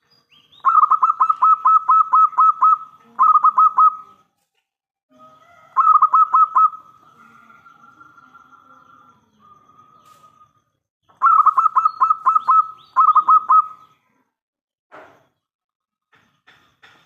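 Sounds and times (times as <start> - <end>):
dove cooing: 0.6 - 4.2, 5.2 - 10.2, 11.2 - 13.8.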